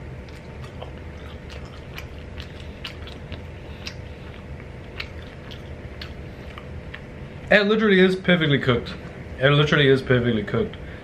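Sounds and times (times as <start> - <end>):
person chewing food: 0.0 - 7.5
steady low hum: 0.0 - 11.0
wet mouth clicks: 0.2 - 7.1.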